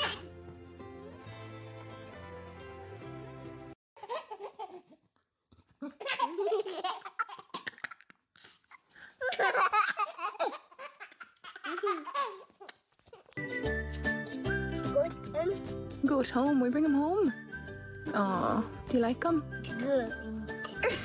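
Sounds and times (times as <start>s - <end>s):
baby laughing: 0.0s - 0.2s, 4.0s - 5.0s, 5.8s - 13.4s.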